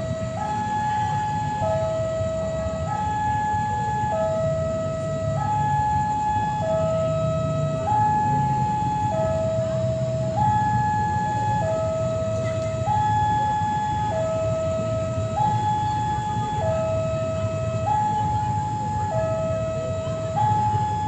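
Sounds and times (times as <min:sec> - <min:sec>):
low rumbling hum: 0:00.0 - 0:21.0
two-tone siren: 0:00.0 - 0:21.0.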